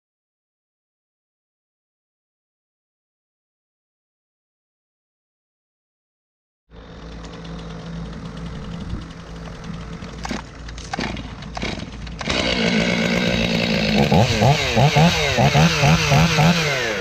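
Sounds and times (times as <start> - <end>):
chainsaw running: 6.7 - 17.0
sharp clicks: 10.1 - 12.4.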